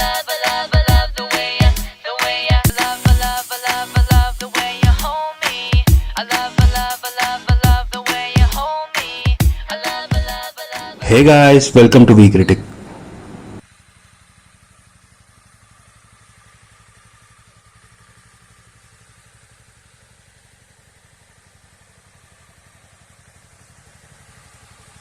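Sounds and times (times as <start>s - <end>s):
motorcycle engine idling: 12.4s - 25.0s.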